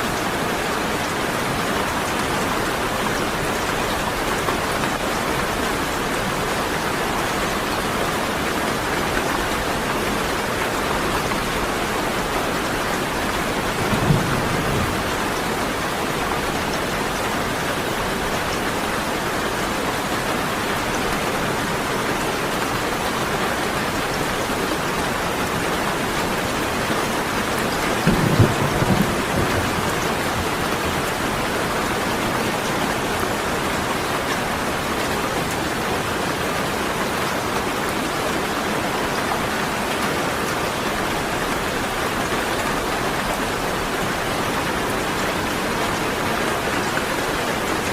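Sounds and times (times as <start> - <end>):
steady rain pouring: 0.0 - 47.9
low rumble of thunder: 13.5 - 16.2, 28.0 - 31.2.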